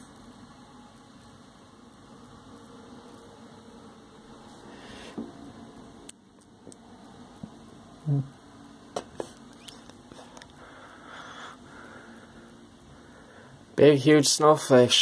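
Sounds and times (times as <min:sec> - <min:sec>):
low steady hum: 0:00.0 - 0:15.0
faint clicks and taps: 0:06.1 - 0:07.6.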